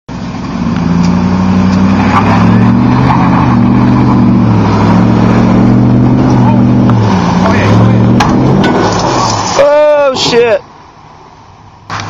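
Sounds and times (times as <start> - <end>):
vehicle engine running: 0.1 - 9.4.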